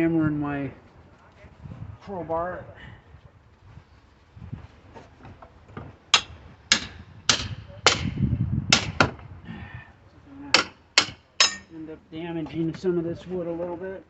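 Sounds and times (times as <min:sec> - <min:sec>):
sledgehammer striking wood and metal: 0:05.8 - 0:09.2, 0:10.5 - 0:11.7.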